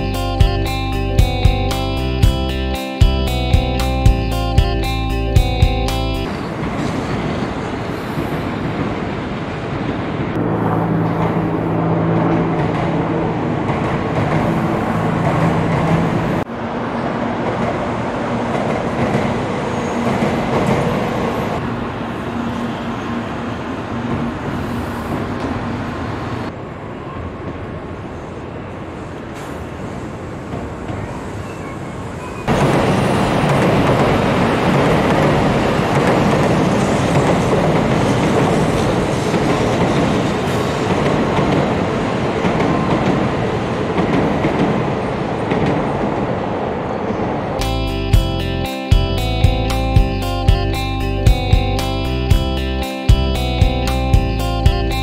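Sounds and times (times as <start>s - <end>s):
train wheels rushing on rail: 5.4s - 47.8s.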